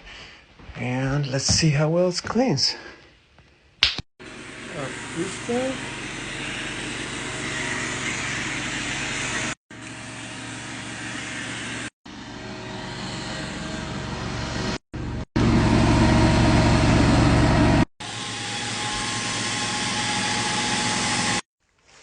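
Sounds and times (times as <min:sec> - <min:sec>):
carpet cleaning machine running: 0:04.2 - 0:21.4.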